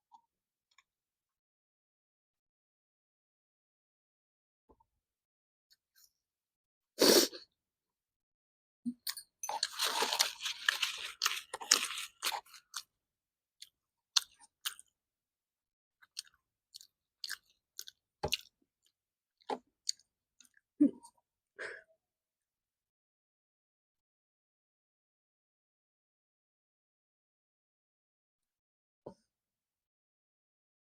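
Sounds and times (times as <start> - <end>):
chewing and crunching food: 9.5 - 12.9, 13.6 - 15.0, 16.0 - 19.0, 19.8 - 20.7.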